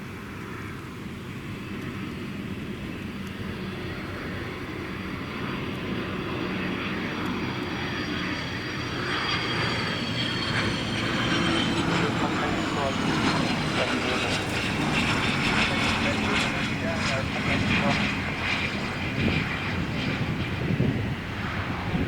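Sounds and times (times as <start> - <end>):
jet engines whining: 0.0 - 22.0.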